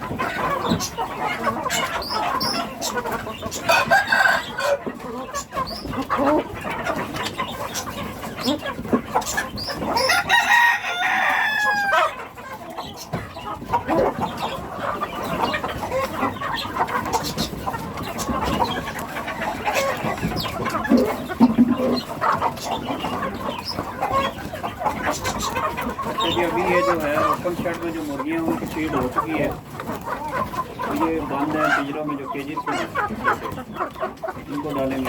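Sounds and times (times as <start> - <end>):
chickens clucking: 0.0 - 35.0
rooster crowing: 3.7 - 4.8, 10.0 - 12.2.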